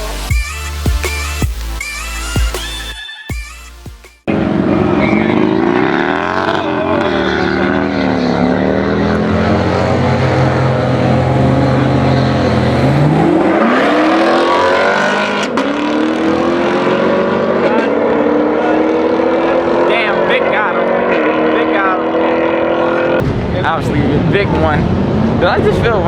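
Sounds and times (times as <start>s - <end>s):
music: 0.0s - 4.3s
car engine revving: 4.3s - 26.0s.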